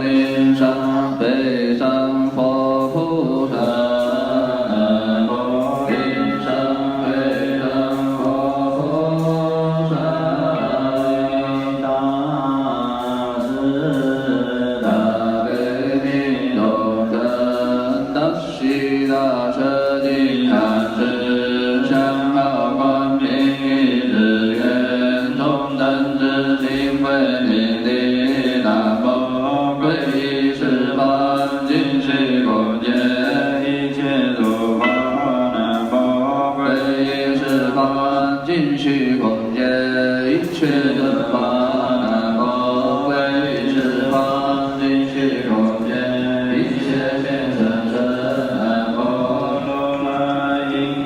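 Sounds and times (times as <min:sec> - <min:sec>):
slow vocal chanting: 0:00.0 - 0:51.0.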